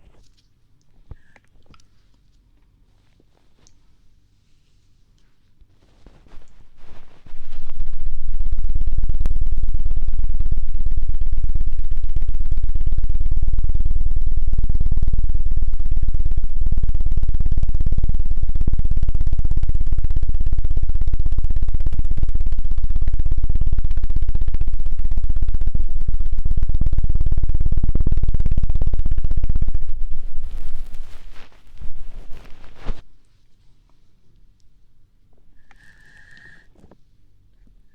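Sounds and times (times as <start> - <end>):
tool fluttering against microphone: 29.8 - 33.0.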